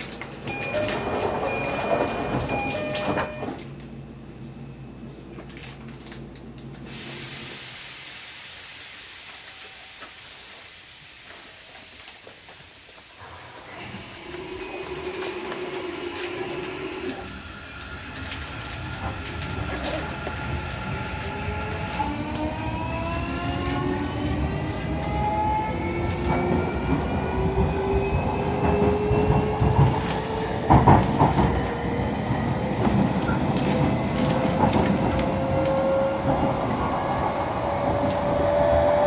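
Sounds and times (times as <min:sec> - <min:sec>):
wheels rumbling on rails: 0:00.0 - 0:06.9, 0:09.5 - 0:39.0
electric train motors whining: 0:13.2 - 0:39.0.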